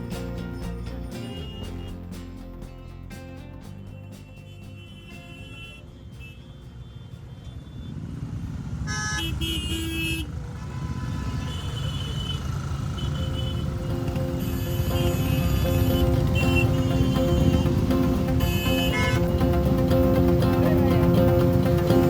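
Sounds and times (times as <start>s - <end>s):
motorcycle engines running: 0.0s - 22.0s
vehicle horn honking: 8.9s - 17.8s, 18.4s - 19.3s.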